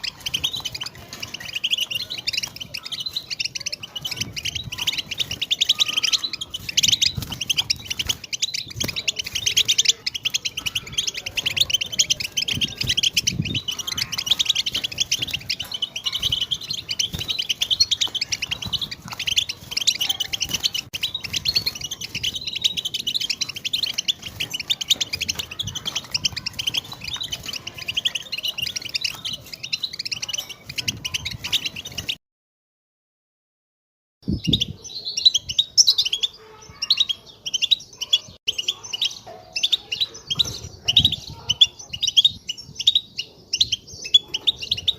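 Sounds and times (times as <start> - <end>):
goldfinch twittering: 0.0 - 32.2.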